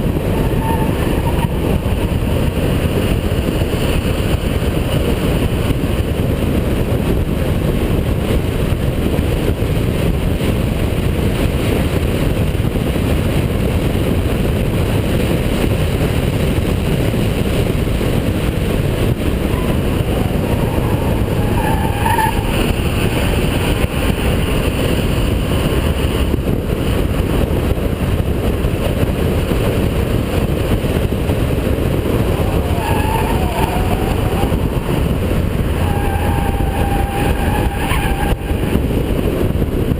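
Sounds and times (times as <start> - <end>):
car engine loud drone: 0.0 - 39.9
road and wind noise: 0.0 - 39.9
short wavering squeals: 0.2 - 2.6, 19.5 - 23.2, 32.3 - 38.8.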